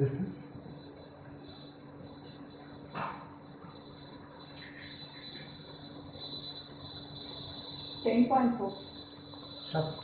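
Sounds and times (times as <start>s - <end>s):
high test tone: 4.1s - 10.0s.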